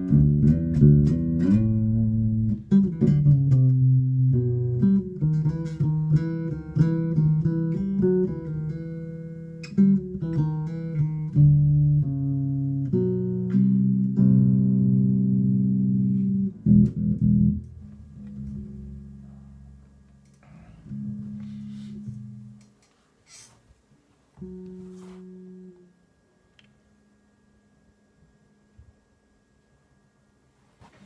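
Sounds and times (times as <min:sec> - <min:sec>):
electric bass notes: 0:00.0 - 0:22.8, 0:24.4 - 0:29.6.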